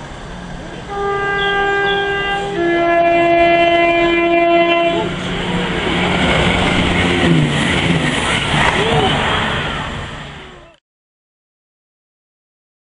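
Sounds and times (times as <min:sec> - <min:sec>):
train rushing past: 0:00.0 - 0:10.8
train horn blast: 0:00.6 - 0:08.0.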